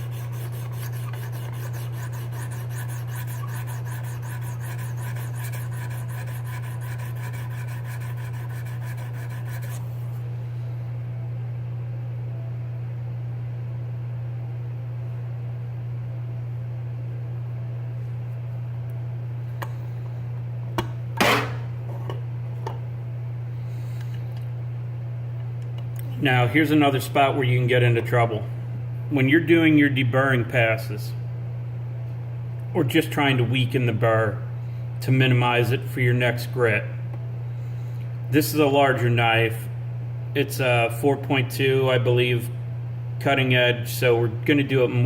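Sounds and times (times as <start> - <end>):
stone rubbing along knife edge: 0.0 - 10.2
steady low hum: 0.0 - 45.0.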